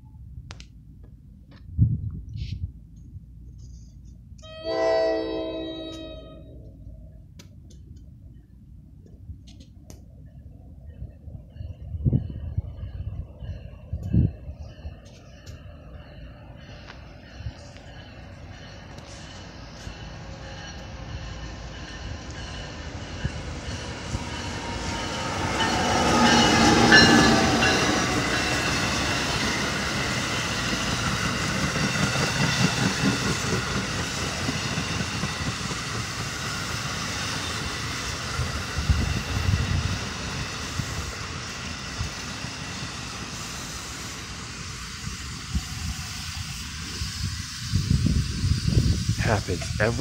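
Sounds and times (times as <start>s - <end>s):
electric locomotive whine: 3.3s - 7.3s, 10.1s - 50.0s
wheels clattering on rails: 16.8s - 39.1s.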